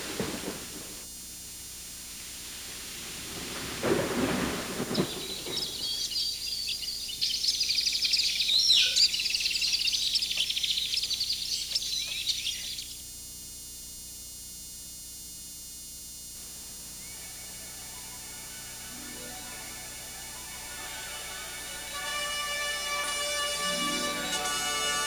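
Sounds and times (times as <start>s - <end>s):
faint hiss: 0.0s - 25.0s
birds chirping and trilling: 4.2s - 13.0s, 16.6s - 25.0s.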